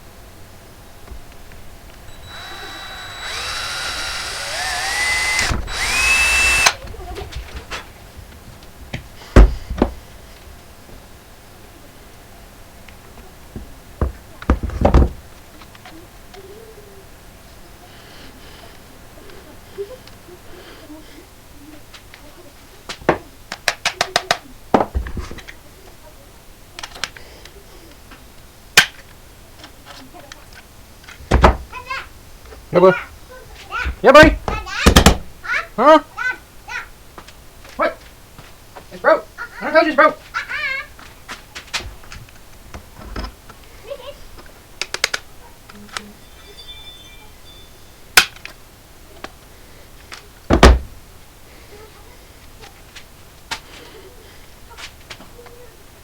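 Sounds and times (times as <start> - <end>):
electric drill whining: 2.1 - 6.8
sharp hard clicks: 2.1 - 6.8.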